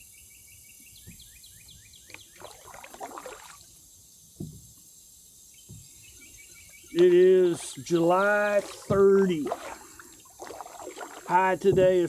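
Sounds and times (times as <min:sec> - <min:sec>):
paddle splashing through water: 0:02.2 - 0:03.7, 0:07.0 - 0:12.0
dull knocks: 0:04.4 - 0:04.7, 0:08.8 - 0:09.1, 0:11.6 - 0:12.0.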